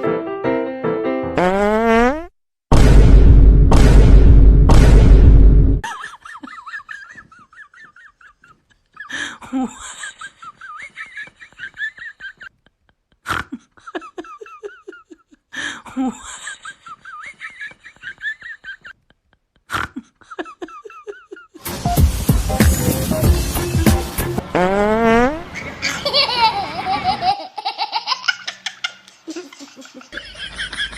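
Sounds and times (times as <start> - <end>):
high-pitched wavering laughter: 5.8 - 9.2, 25.5 - 30.9.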